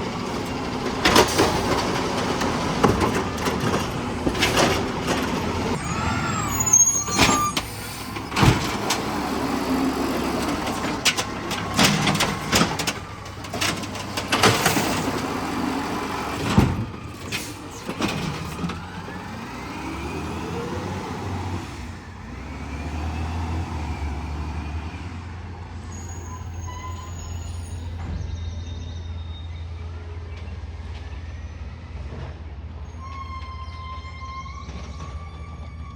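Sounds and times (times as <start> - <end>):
truck engine running: 0.0 - 7.0, 7.6 - 22.7
hydraulic whines: 0.0 - 23.4, 25.9 - 32.1, 32.9 - 35.9.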